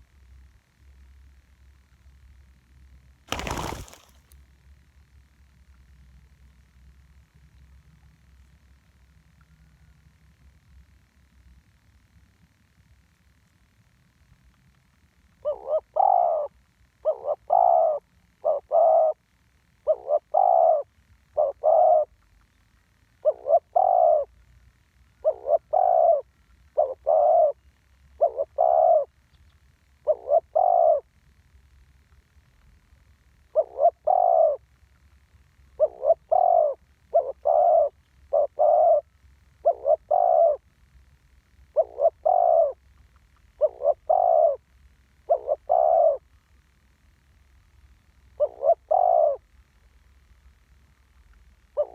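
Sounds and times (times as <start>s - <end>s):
dove cooing: 3.3s - 4.1s, 15.4s - 19.2s, 19.8s - 22.2s, 23.2s - 24.4s, 25.2s - 27.6s, 28.2s - 29.2s, 30.0s - 31.1s, 33.4s - 34.6s, 35.8s - 40.6s, 41.7s - 42.8s, 43.5s - 44.6s, 45.2s - 46.2s, 48.4s - 49.4s.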